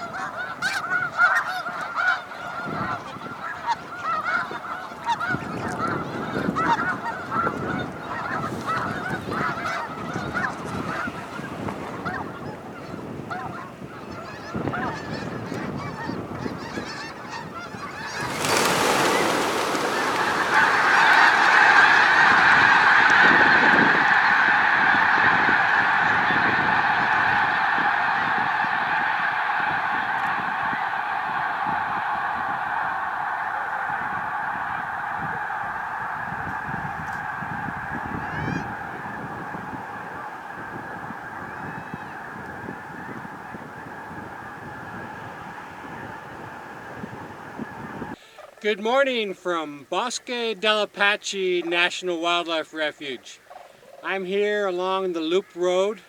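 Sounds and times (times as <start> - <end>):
waterbirds honking: 0.0 - 56.0.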